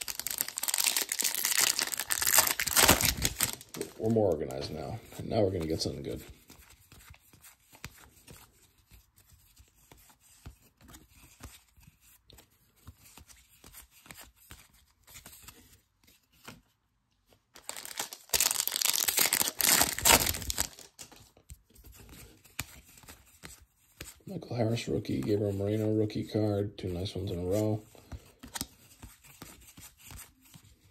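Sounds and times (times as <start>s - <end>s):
wrapper being torn open: 0.0s - 4.0s, 17.6s - 21.2s
cards being handled: 0.0s - 26.3s, 26.9s - 30.9s.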